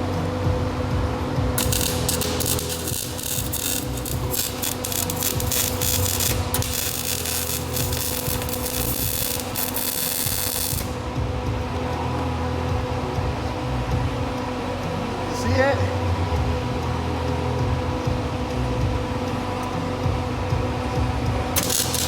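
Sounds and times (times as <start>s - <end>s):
welding arc crackling and hissing: 1.6s - 11.1s, 21.6s - 22.0s.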